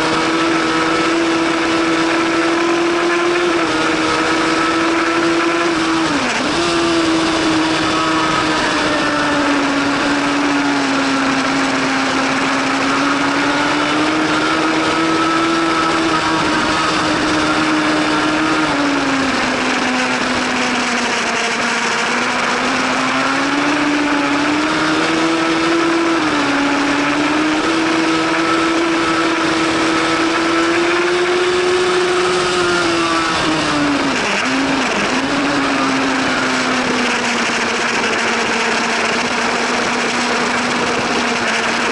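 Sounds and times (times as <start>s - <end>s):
motorcycle engine at high revs: 0.0s - 41.9s.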